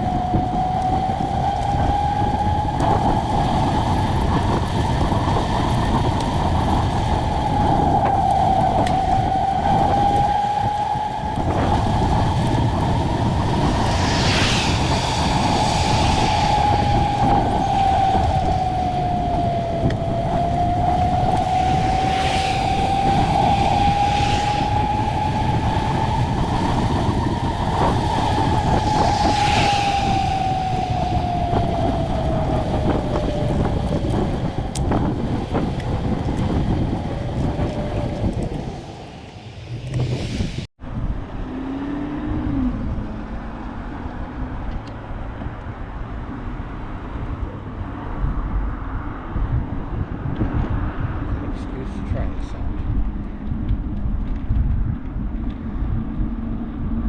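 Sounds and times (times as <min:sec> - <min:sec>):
steady whine: 0:00.0 - 0:40.7
vehicles passing: 0:00.0 - 0:54.5
wind rushing over microphone: 0:00.0 - 0:57.0.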